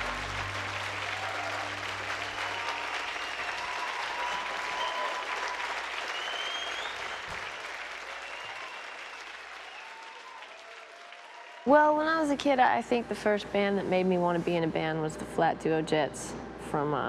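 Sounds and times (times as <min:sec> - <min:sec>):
audience applauding and cheering: 0:00.0 - 0:12.0.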